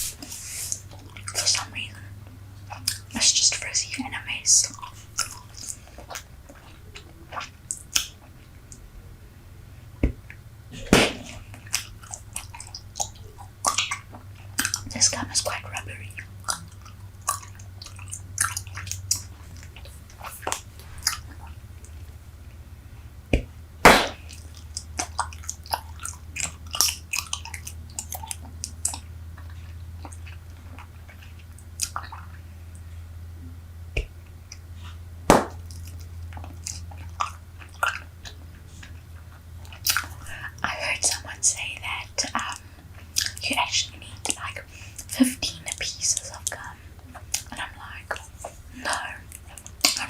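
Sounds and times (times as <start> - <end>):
bubble gum chewing: 0.0 - 9.0, 9.7 - 50.0
sharp gum snaps: 4.6 - 8.9, 10.0 - 14.9, 23.3 - 32.4, 35.3 - 38.9, 39.6 - 40.4, 41.9 - 43.4, 44.2 - 50.0.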